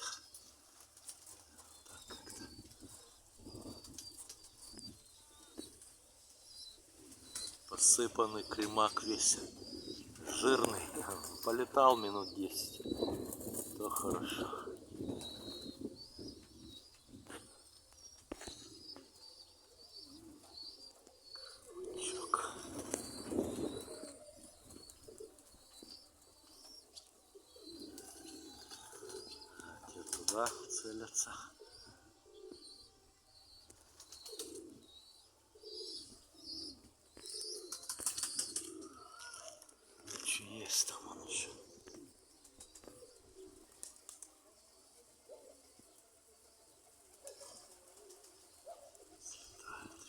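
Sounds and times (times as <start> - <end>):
birds chirping: 0.0 - 50.0
pigeons cooing: 0.0 - 50.0.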